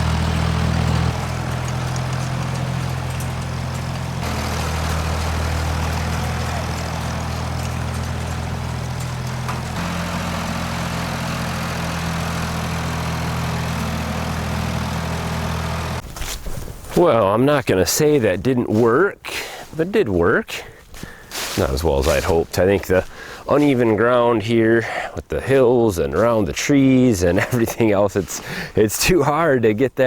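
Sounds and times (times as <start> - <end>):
tractor engine running under load: 0.0 - 16.0.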